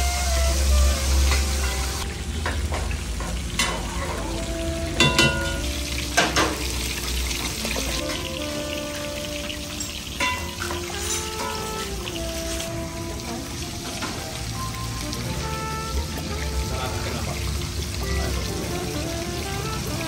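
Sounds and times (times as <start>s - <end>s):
fish sizzling in hot oil: 0.0s - 20.0s
metal spoon knocking pot: 5.0s - 5.6s.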